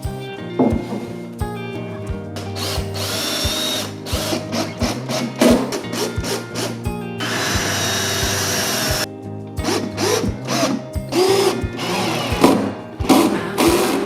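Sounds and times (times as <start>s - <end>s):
background music with beat: 0.0s - 14.0s
power drill running: 2.6s - 9.1s, 9.7s - 12.6s.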